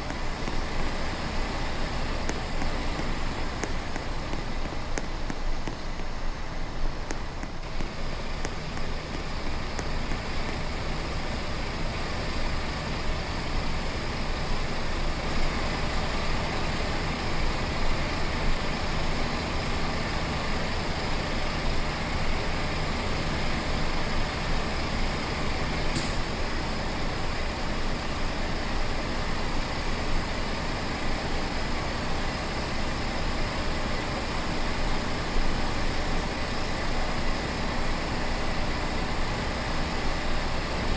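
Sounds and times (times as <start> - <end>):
road noise: 0.0 - 14.6
truck engine drone: 0.0 - 40.9.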